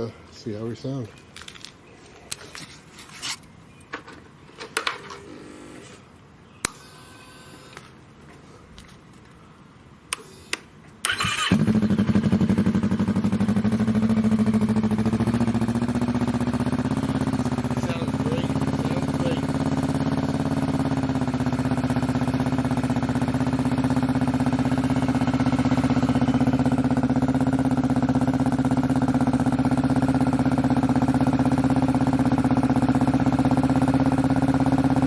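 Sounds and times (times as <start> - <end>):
motorcycle engine starting and idling: 10.1 - 35.0.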